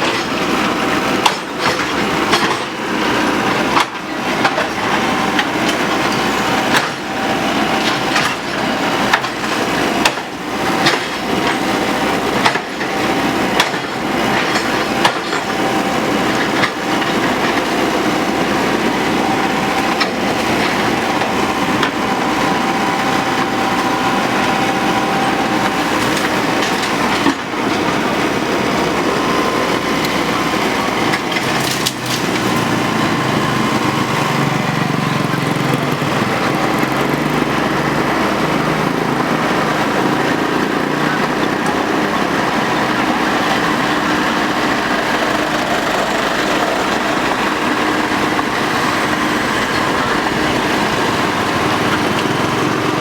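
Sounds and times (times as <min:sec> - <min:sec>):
excavator running: 0:00.0 - 0:53.0
bamboo cracking and splintering: 0:31.2 - 0:32.6.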